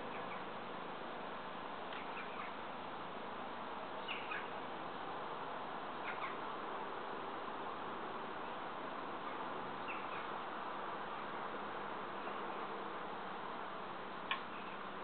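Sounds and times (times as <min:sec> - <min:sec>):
birds chirping: 0:00.0 - 0:00.5, 0:01.9 - 0:02.6, 0:04.0 - 0:04.6, 0:06.0 - 0:06.4, 0:09.3 - 0:10.4
steady background hiss: 0:00.0 - 0:15.0.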